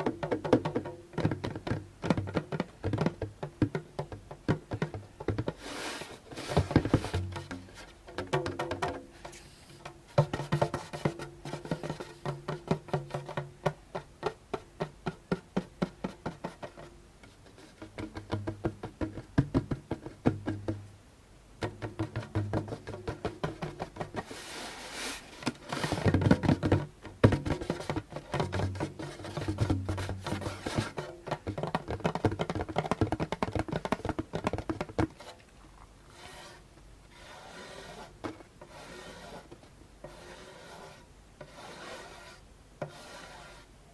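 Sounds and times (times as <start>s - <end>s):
fingertips tapping on hand drum: 0.0s - 5.7s, 6.3s - 20.9s, 21.6s - 24.3s, 25.4s - 35.4s.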